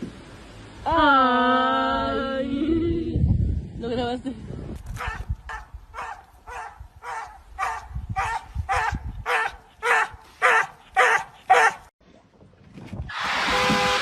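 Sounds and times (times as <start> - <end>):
dog barking: 5.0 - 11.9.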